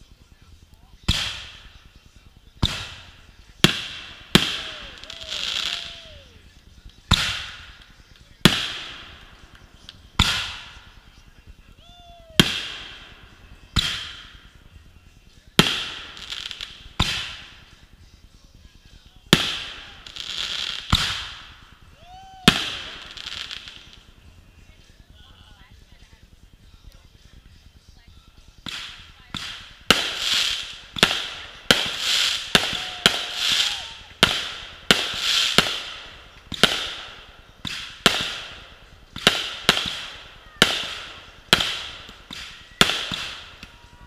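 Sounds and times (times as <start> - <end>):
firework shells bursting: 28.5 - 44.0.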